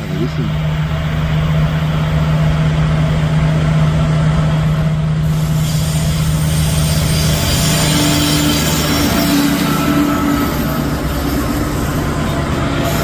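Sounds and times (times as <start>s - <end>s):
locomotive engine drone: 0.0s - 13.0s
wheel and rail hiss: 5.2s - 13.0s.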